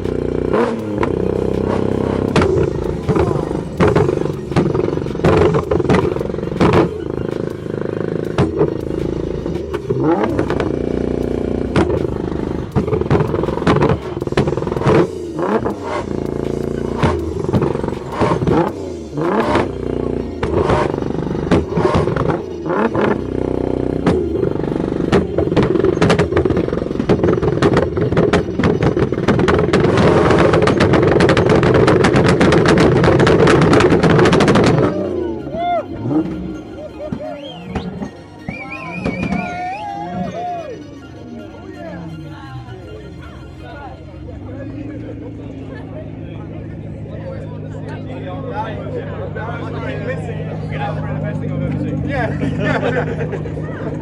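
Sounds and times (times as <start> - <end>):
exhaust pops and bangs: 0.0 - 35.0, 37.1 - 39.6
car engines revving: 0.0 - 54.0.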